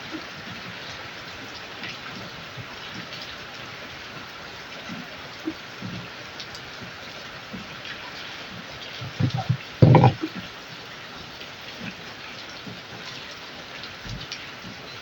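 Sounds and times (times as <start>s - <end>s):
rain pattering on a roof: 0.0s - 15.0s
close knocks: 9.2s - 10.2s.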